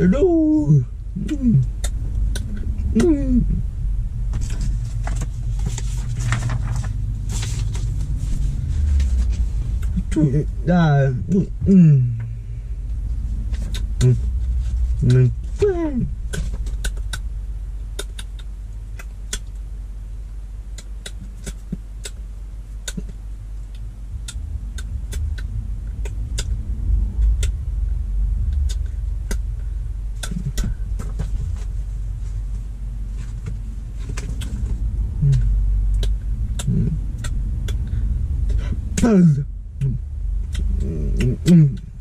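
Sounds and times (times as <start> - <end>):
car engine rumble inside cabin: 0.0 - 42.0
paper rustling and clicking: 4.4 - 8.1.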